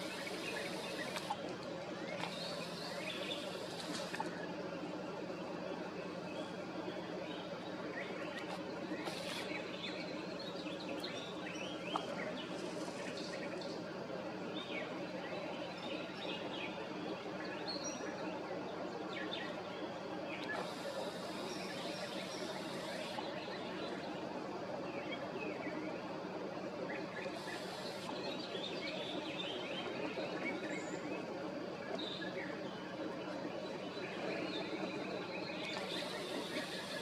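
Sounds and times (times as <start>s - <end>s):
high hissing noise: 0.0s - 1.4s, 9.0s - 9.6s, 20.6s - 23.2s, 27.3s - 28.2s, 35.8s - 37.0s
steady low hum: 0.0s - 37.0s.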